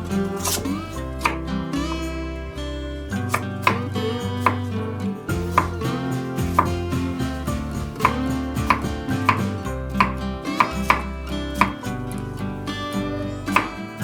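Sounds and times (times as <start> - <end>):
background music: 0.0 - 14.0
knife chopping on cutting board: 0.4 - 2.1, 3.3 - 4.7, 5.5 - 5.8, 6.5 - 6.8, 7.7 - 11.8, 13.6 - 13.8.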